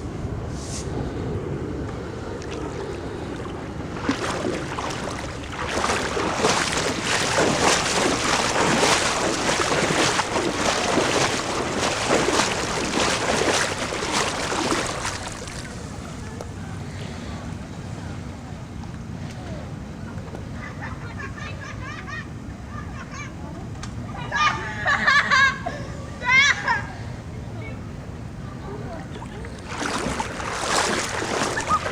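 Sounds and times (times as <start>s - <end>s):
steady low rumble: 0.0s - 17.0s, 29.0s - 31.9s
floodwater splashing and sloshing: 2.0s - 16.4s, 29.1s - 31.9s.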